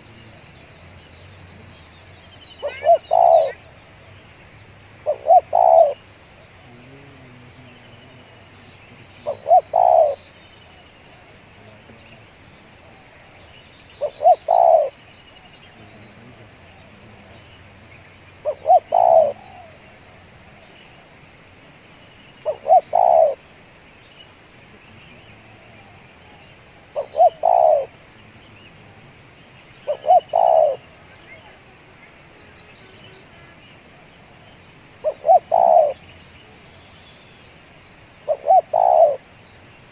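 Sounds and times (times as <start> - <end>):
dove cooing: 2.6 - 3.7, 5.0 - 6.0, 9.0 - 10.2, 14.0 - 15.0, 18.4 - 19.8, 22.4 - 23.4, 25.4 - 28.0, 29.8 - 31.5, 35.0 - 36.0, 38.2 - 39.2.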